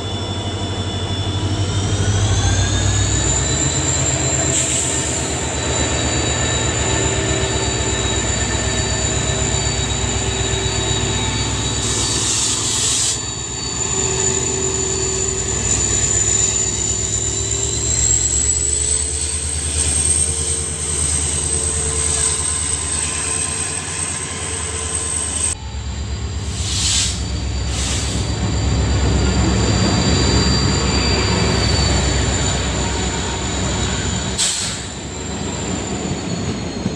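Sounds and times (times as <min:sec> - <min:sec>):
locomotive engine hum: 0:00.0 - 0:36.9
short hiss: 0:26.5 - 0:28.2.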